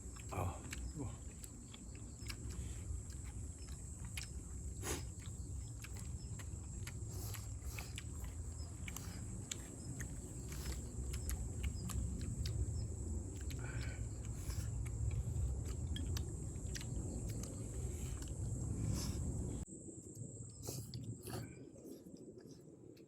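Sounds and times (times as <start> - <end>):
chewing: 0.0 - 23.0
steady low rumble: 0.0 - 23.0.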